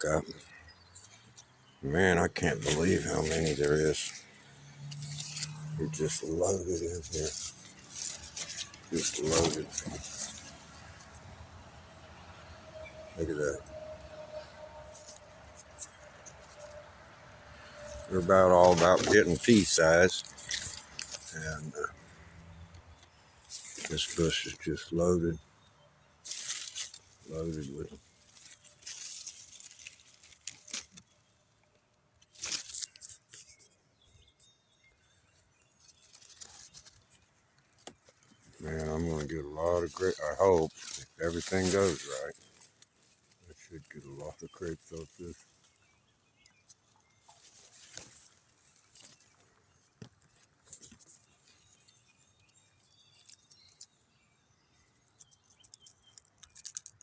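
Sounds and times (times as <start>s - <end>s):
leaves and vines rustling: 2.5s - 11.5s, 17.6s - 21.9s, 23.4s - 24.7s, 26.2s - 31.2s, 32.3s - 33.6s, 35.8s - 37.2s, 38.1s - 45.8s, 47.2s - 51.8s, 56.2s - 57.0s.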